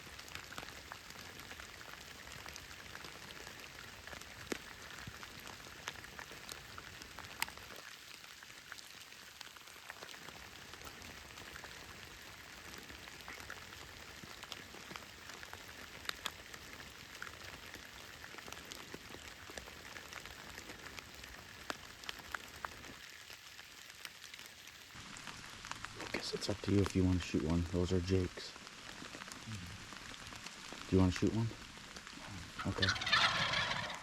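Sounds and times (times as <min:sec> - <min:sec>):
light rain hissing: 0:00.0 - 0:34.0
raindrops ticking close by: 0:00.0 - 0:34.0.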